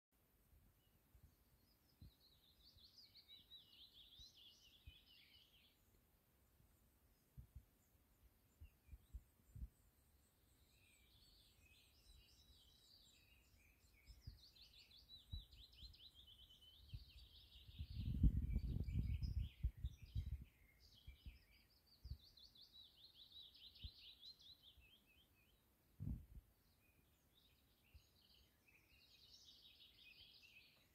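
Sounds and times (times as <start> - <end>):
songbirds trilling: 1.3 - 25.8, 26.5 - 30.9
low rumble on microphone: 16.8 - 21.5, 26.0 - 26.6.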